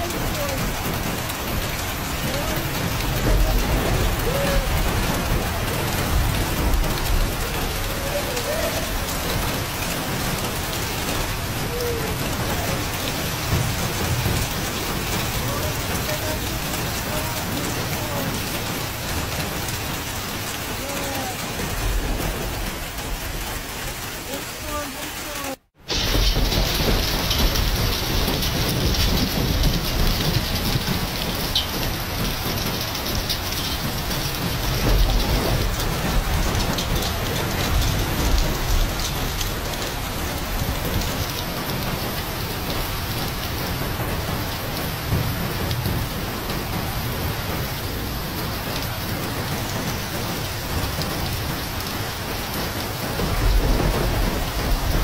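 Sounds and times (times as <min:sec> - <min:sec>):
low rumbles: 0:00.0 - 0:24.8
heavy rain and hail: 0:00.0 - 0:55.0.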